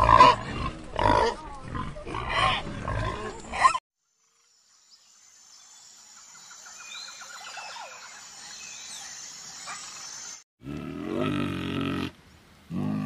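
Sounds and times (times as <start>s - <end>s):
pigs grunting: 0.0s - 3.8s
faint bird calls and trill: 3.3s - 10.4s.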